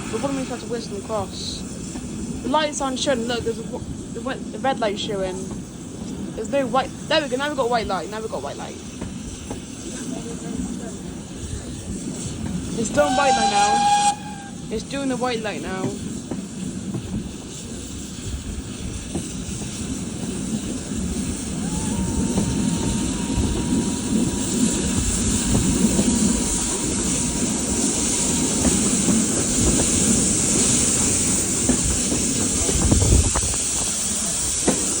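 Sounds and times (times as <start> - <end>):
steady hiss: 0.0 - 35.0
train wheels rumbling on rails: 0.0 - 35.0.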